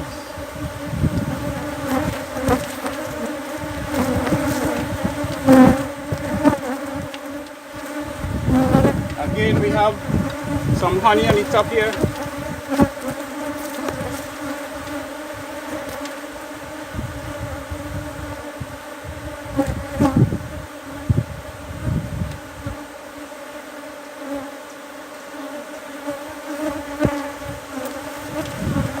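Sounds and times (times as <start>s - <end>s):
low thumps and rustles: 0.0s - 18.4s, 26.9s - 29.0s
bees buzzing: 0.0s - 29.0s.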